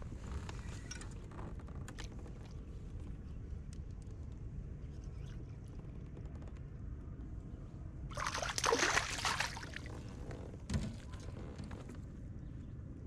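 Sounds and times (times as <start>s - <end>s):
water splashing and sloshing: 8.1s - 11.2s.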